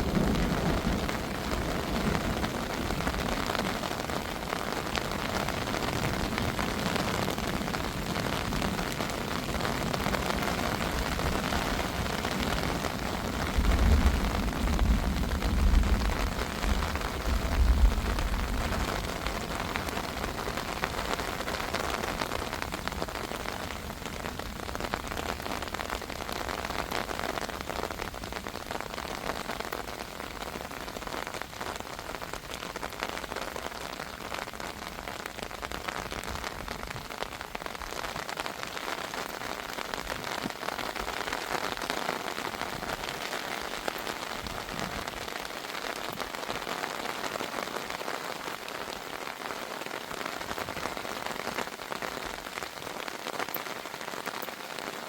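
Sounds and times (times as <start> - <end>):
thunder rumble: 0.0 - 4.5, 5.1 - 26.4
heavy rain falling: 0.0 - 55.0.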